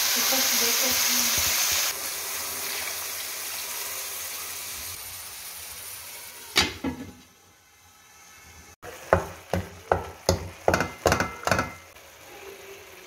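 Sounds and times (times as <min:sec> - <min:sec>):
vegetables sizzling in frying pan: 0:00.0 - 0:13.0
lid knocking onto pan: 0:09.1 - 0:11.8.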